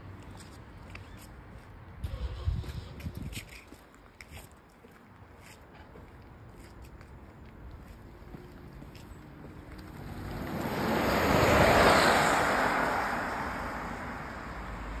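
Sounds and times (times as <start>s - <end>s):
electric car driving past: 9.8s - 15.0s.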